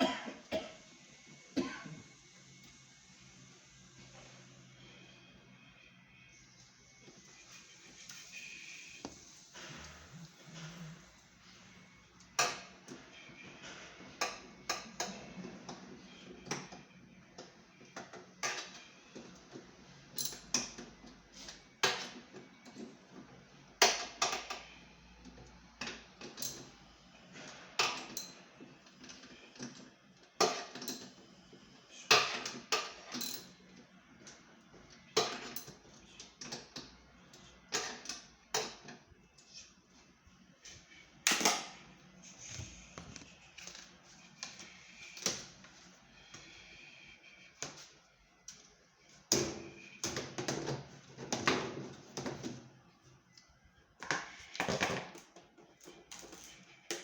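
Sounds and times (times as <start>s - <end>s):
tools and parts clicking: 20.2s - 20.8s, 26.2s - 26.7s, 32.1s - 33.6s.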